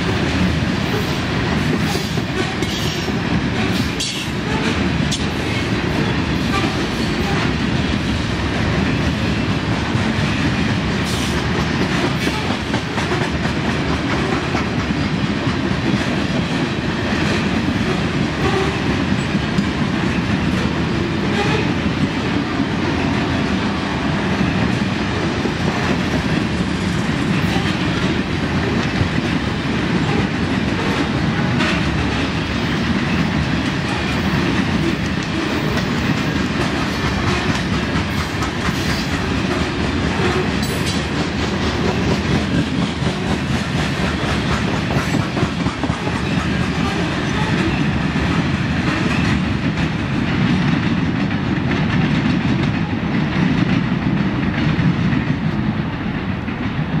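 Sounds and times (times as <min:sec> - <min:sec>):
train wheels rumbling on rails: 0:00.0 - 0:57.0
wheels clacking over rail joints: 0:24.5 - 0:55.8.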